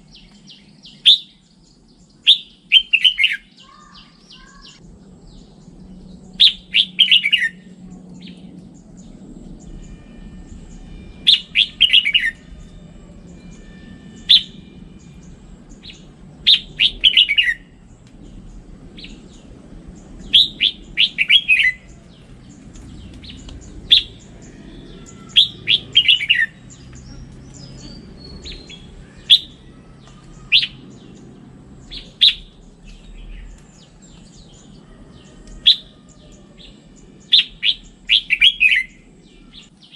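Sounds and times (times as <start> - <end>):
bulbul singing: 0.0 - 39.9.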